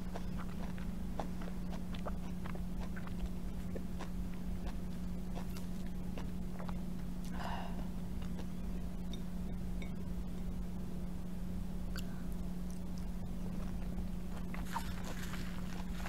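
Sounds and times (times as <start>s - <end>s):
chewing soft fruit: 0.0s - 10.5s, 11.9s - 16.0s
steady low hum: 0.0s - 16.0s
wet mouth clicks: 0.2s - 7.4s.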